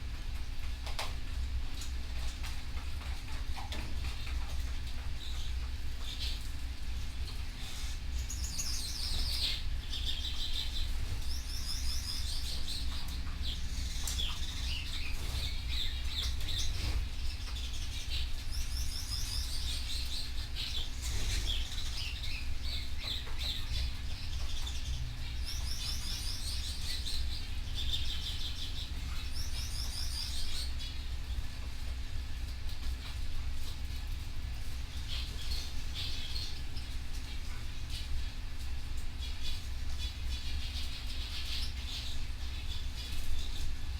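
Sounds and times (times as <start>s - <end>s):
steady low hum: 0.0s - 43.9s
canary singing: 7.6s - 31.1s.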